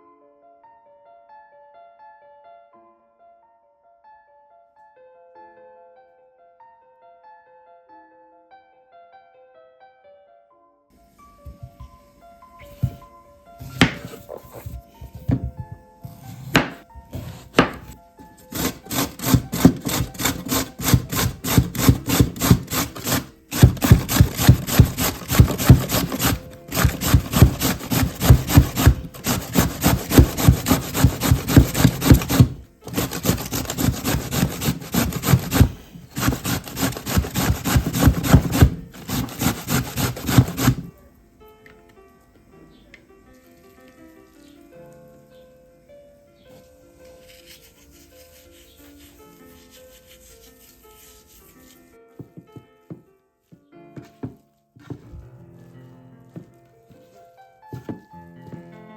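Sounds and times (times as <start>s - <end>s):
vegetables grated on metal grater: 18.5s - 40.9s.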